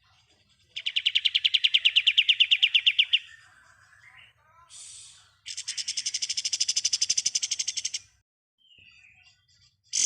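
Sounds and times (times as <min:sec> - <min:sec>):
songbird rapid trill: 0:00.8 - 0:03.4, 0:05.5 - 0:08.1.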